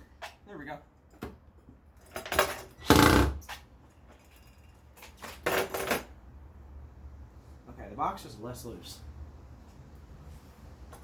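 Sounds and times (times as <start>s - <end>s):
screws being driven: 2.8s - 3.4s.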